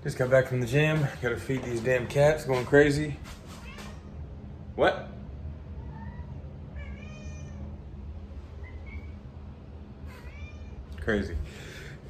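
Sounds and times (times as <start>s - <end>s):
low steady hum: 0.0s - 12.0s
cats meowing: 3.4s - 4.2s, 5.8s - 7.8s, 8.5s - 9.3s, 10.1s - 11.0s.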